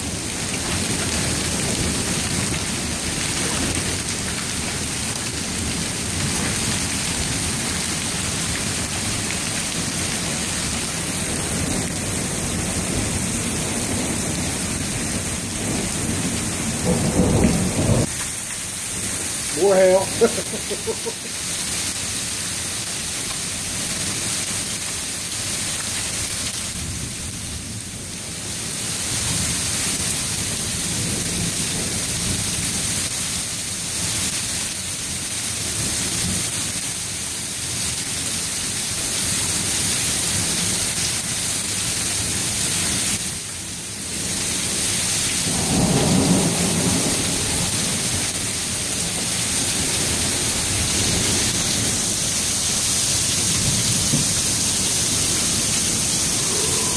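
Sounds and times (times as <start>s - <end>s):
heavy hail and rain pelting: 0.0s - 56.9s
low thunder rumble: 11.4s - 18.1s, 55.3s - 56.9s.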